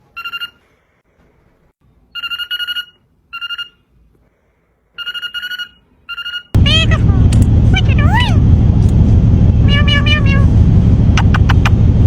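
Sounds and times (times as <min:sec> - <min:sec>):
parrot mimicking telephone ring: 0:02.2 - 0:03.8, 0:05.0 - 0:07.0.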